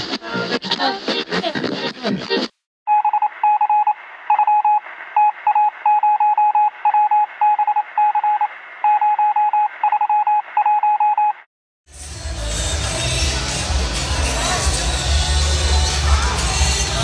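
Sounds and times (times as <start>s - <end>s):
morse code beeping: 2.9s - 11.4s.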